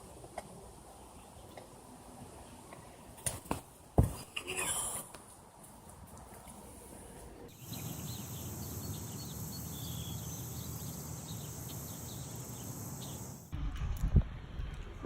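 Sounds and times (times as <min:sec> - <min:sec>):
bird chirps: 0:07.5 - 0:13.5
insects droning: 0:07.5 - 0:13.5.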